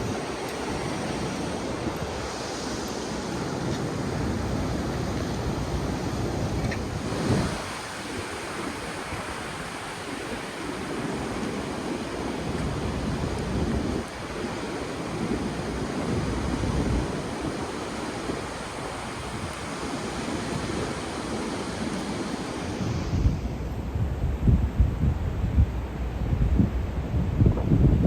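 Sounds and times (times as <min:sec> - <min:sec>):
ocean surf washing in: 0:00.0 - 0:28.0
wind buffeting microphone: 0:00.0 - 0:28.0.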